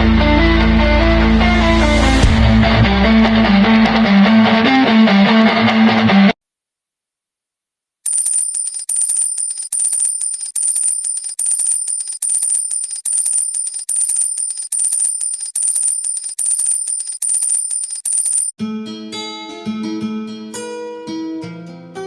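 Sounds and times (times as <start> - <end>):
high-pitched electronic ringing trill: 8.1 - 18.5.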